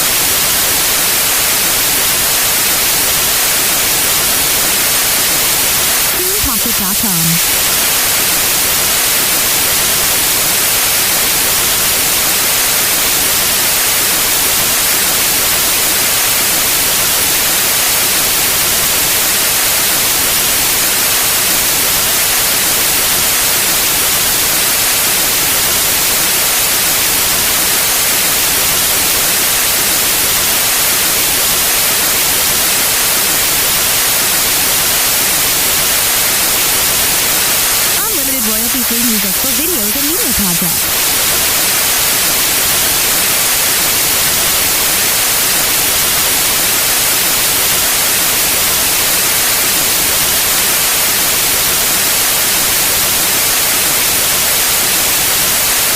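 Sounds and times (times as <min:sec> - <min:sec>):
electronic white noise: 0:00.0 - 0:13.6, 0:34.0 - 0:45.9.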